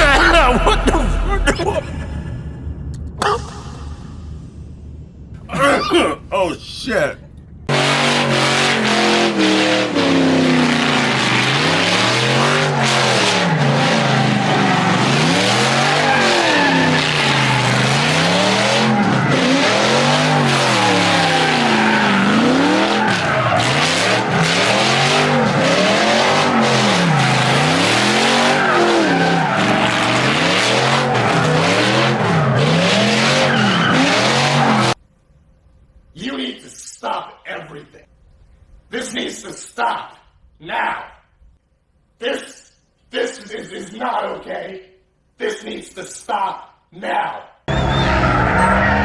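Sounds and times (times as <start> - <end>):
tyres squealing: 5.4 - 7.1, 47.7 - 49.0
truck engine revving: 7.7 - 34.9, 47.7 - 49.0.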